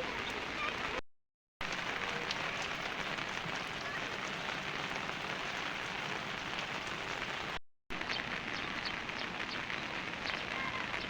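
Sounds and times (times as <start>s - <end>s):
rain falling: 0.0s - 1.0s, 1.6s - 11.0s.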